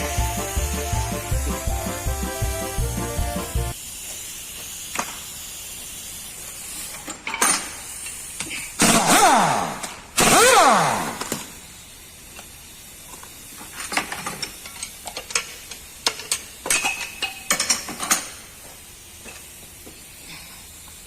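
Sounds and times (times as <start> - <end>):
loud burst with falling whine: 0.0 - 4.4
metallic clinks of tools: 14.0 - 18.4.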